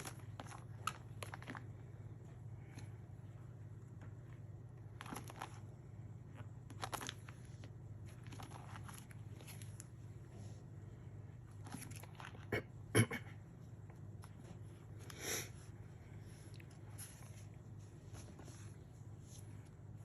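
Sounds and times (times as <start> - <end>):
album pages rustling: 0.0 - 1.8, 4.9 - 5.7, 6.3 - 10.0
steady low hum: 0.0 - 20.0.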